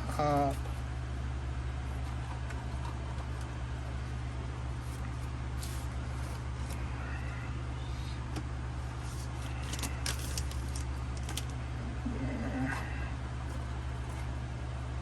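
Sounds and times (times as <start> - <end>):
steady low hum: 0.0 - 15.0
cards and foil packs crinkling: 9.0 - 11.6.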